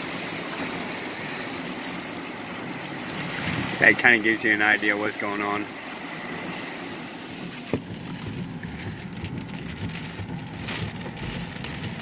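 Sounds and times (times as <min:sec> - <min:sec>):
heavy rain on car roof: 0:00.0 - 0:12.0
low rumble: 0:07.7 - 0:12.0.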